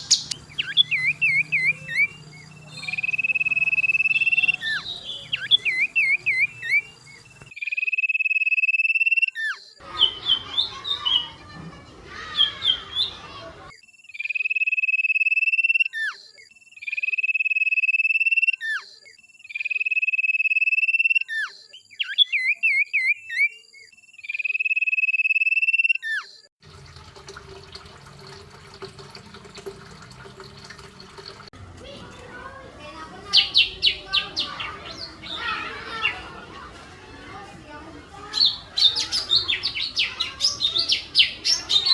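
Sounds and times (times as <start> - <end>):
warbling bird chirps: 0.0 - 7.8, 38.3 - 41.9
songbird trills: 0.0 - 9.2, 9.8 - 26.2, 32.9 - 36.4, 38.2 - 41.9.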